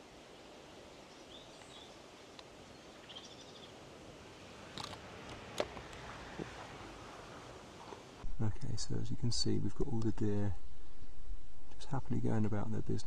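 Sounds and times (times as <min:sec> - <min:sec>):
distant bird chirps: 0:00.0 - 0:08.2.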